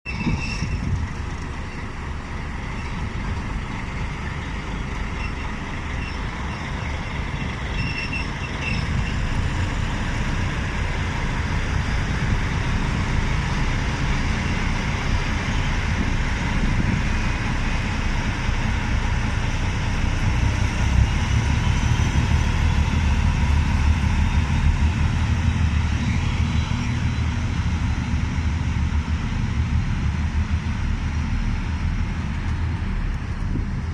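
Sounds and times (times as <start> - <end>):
diesel locomotives rumbling: 0.0 - 33.9.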